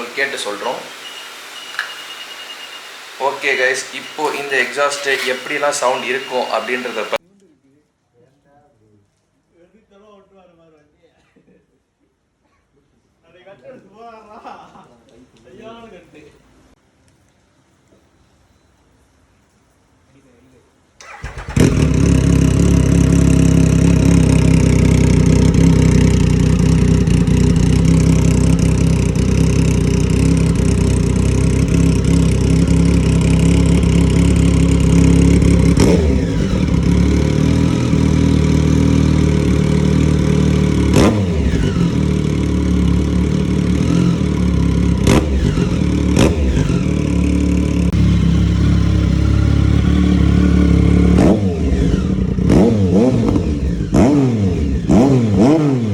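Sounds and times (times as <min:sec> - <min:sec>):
motorcycle engine idling: 0:00.0 - 0:07.2, 0:21.0 - 0:55.5.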